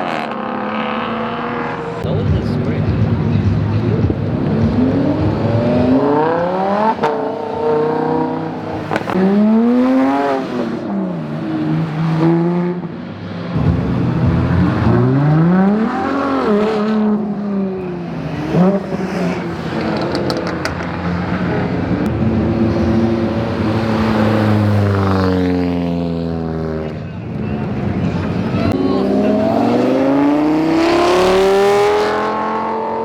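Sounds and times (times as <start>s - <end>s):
car engine revving hard: 3.9s - 12.9s, 13.6s - 26.6s, 28.6s - 33.0s
exhaust cracks: 17.8s - 21.4s.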